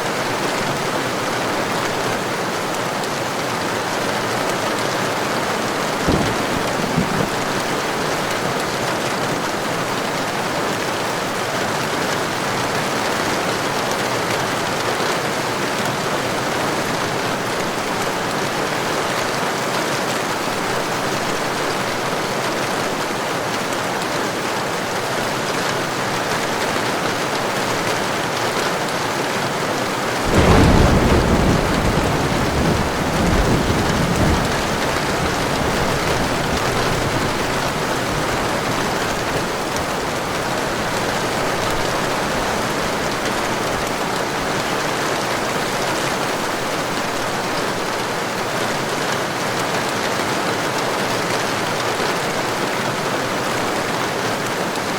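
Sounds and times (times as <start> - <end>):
heavy rain falling: 0.0 - 54.9
thunderclap rumbling: 5.8 - 8.7, 30.2 - 43.8.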